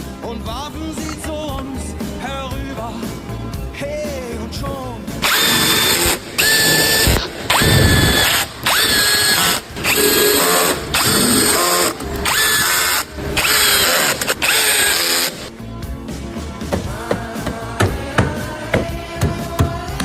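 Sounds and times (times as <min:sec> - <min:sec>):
power drill whining in bursts: 0:05.2 - 0:15.5.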